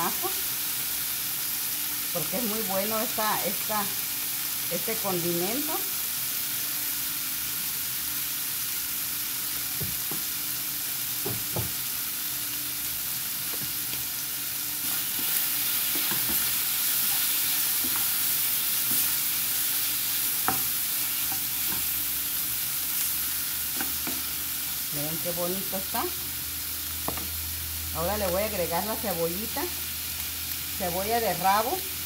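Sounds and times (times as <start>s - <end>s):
liver sizzling in oil: 0.0s - 32.0s
spoon scraping a pan: 14.8s - 22.0s.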